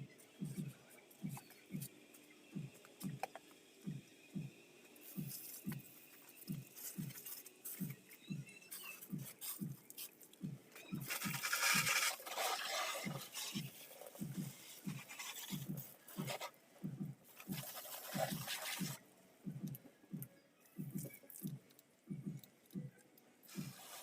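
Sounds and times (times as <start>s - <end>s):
brush scrubbing a motorbike: 11.0s - 16.5s, 17.4s - 19.0s, 23.5s - 24.0s.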